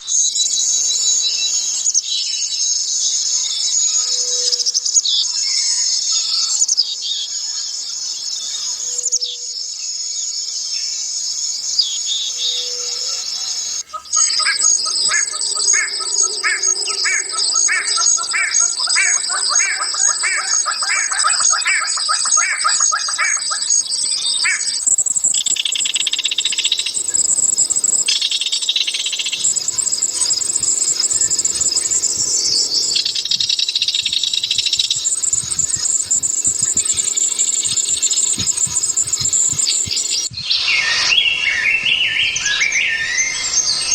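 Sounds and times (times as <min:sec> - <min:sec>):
forest birds calling: 0:00.0 - 0:43.9
insect chorus: 0:00.0 - 0:43.9
bird repeating rhythmic notes: 0:13.4 - 0:40.3.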